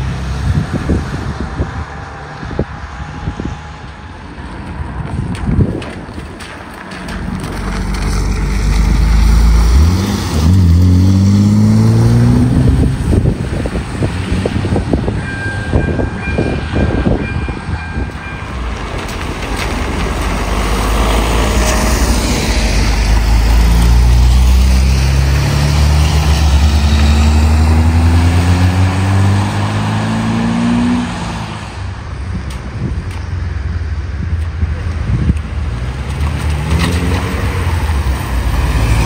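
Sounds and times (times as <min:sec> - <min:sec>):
car accelerating past: 0:07.1 - 0:13.3, 0:20.0 - 0:31.8, 0:36.0 - 0:39.0.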